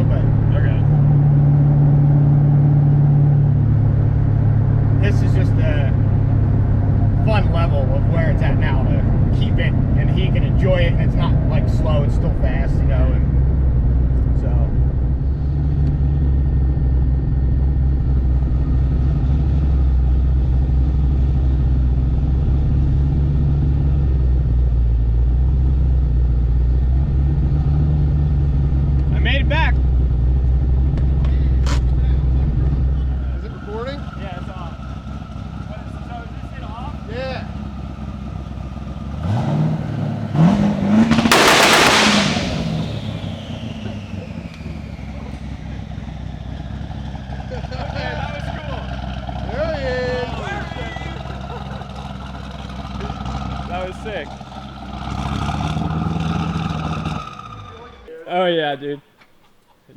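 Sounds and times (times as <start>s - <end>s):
road and tyre noise: 0.0s - 58.2s
car engine droning: 0.0s - 58.3s
loud rushing hiss: 41.3s - 43.5s.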